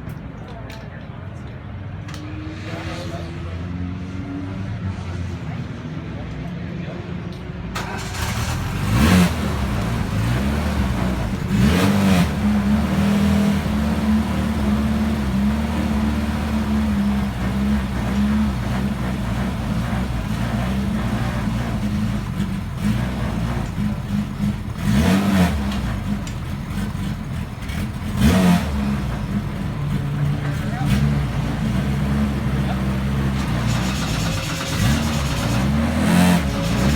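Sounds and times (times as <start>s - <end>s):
race car engine revving: 7.8s - 36.9s.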